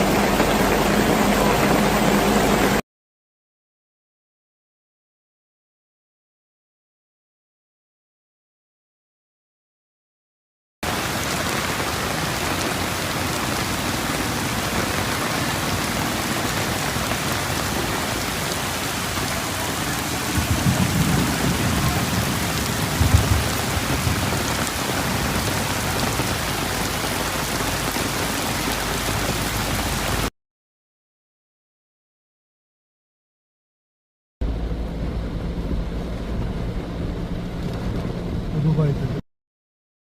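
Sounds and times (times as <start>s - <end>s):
heavy rain pouring: 0.0s - 2.8s, 10.8s - 30.3s
low rumble: 34.4s - 39.2s.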